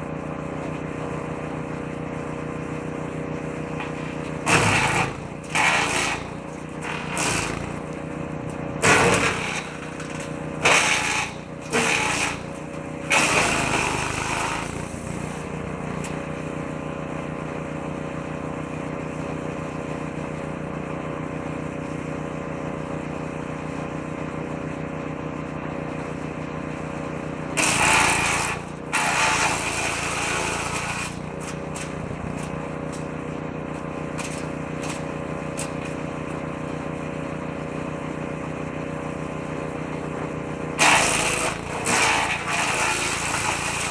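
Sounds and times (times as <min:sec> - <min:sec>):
woodchipper engine running: 0:00.0 - 0:43.9
branches shredding: 0:04.0 - 0:15.4, 0:40.8 - 0:43.9.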